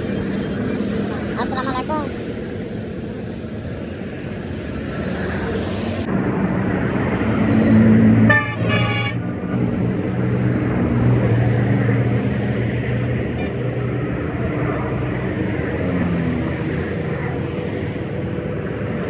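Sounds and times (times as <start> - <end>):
vehicle engine humming: 0.0 - 19.0
horn toots: 8.1 - 11.0.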